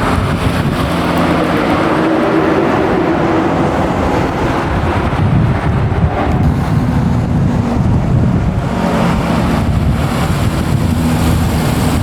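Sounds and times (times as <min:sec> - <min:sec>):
car engine running: 0:02.8 - 0:12.0.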